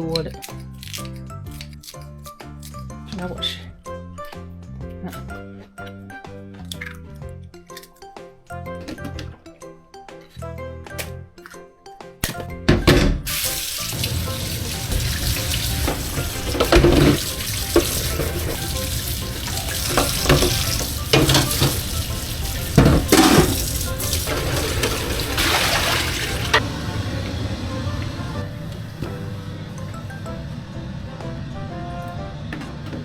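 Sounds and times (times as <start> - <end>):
water running from a tap: 13.3 - 29.0
dishes clunking: 13.9 - 26.6.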